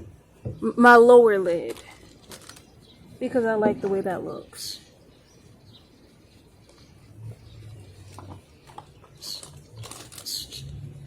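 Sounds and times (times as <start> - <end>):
small clicks: 1.7 - 2.7, 8.7 - 10.7.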